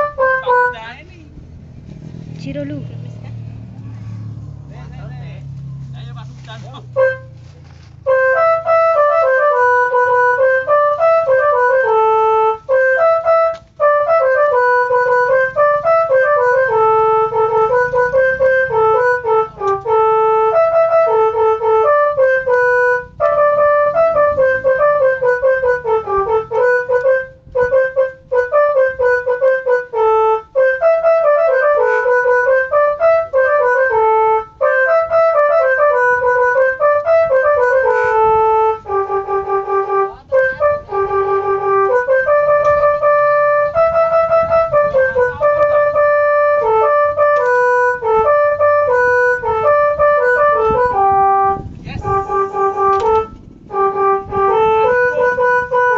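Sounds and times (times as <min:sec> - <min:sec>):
air horns playing a quick melody: 0:00.0 - 0:01.0, 0:06.2 - 0:55.9
low rumble: 0:50.6 - 0:55.9.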